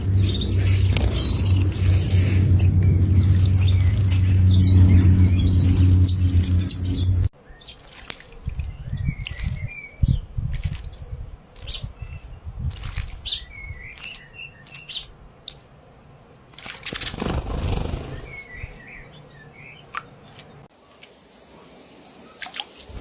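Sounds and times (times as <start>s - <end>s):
wing flutters: 0.0s - 9.6s, 16.5s - 18.8s, 22.4s - 23.0s
water splashing: 0.0s - 15.8s
small birds chirping: 0.0s - 20.7s.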